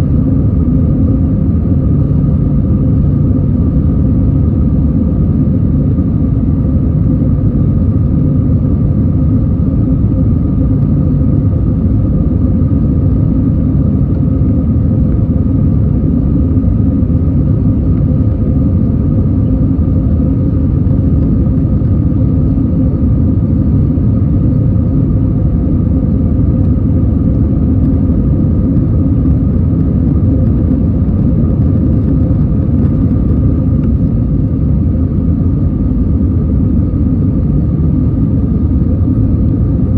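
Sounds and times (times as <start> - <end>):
faint steady hum: 0.0 - 39.9
jet engine rumble: 0.0 - 39.9.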